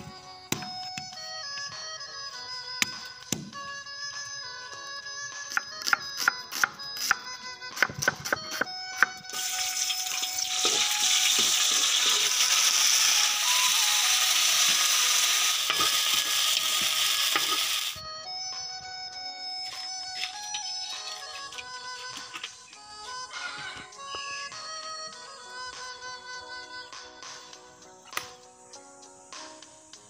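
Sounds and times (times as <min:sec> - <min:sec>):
background music: 0:00.0 - 0:30.0
garlic sizzling in hot oil: 0:09.3 - 0:18.0.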